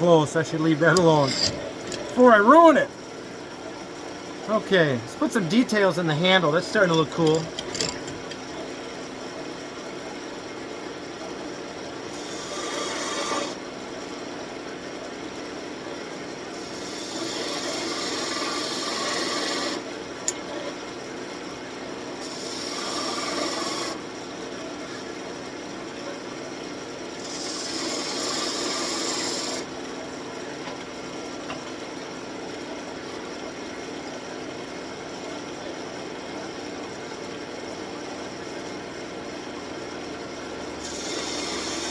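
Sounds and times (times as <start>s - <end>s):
turning tool scraping wood: 0.0s - 2.8s, 5.0s - 8.6s, 27.2s - 29.6s, 40.8s - 41.9s
wood lathe running: 0.0s - 2.9s, 4.5s - 8.7s, 12.1s - 13.6s, 16.6s - 19.8s, 22.2s - 24.0s, 27.2s - 29.6s, 40.7s - 41.9s.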